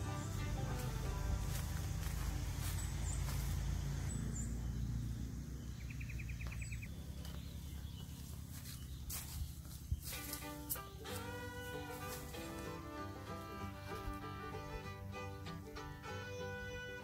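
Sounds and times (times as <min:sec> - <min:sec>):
steady low rumble: 0:00.0 - 0:10.2
bird chirps: 0:01.6 - 0:11.2.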